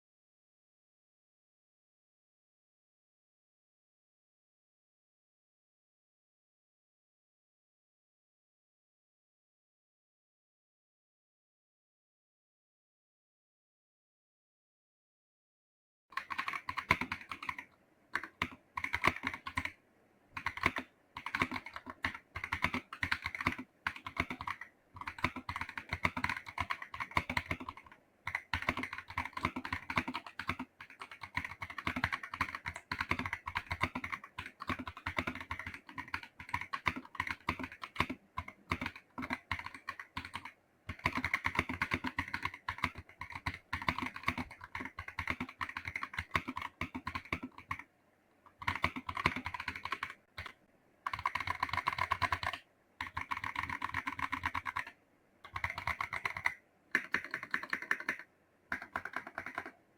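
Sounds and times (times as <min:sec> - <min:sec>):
keyboard key clicks: 0:48.5 - 0:59.7.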